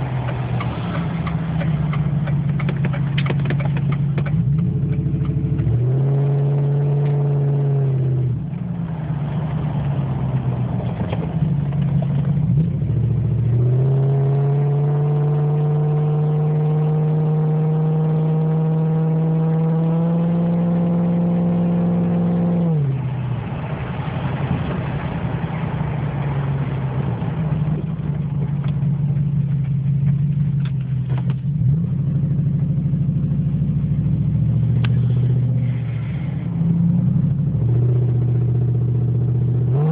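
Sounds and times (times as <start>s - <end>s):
open exhaust engine revving: 0.0s - 23.1s.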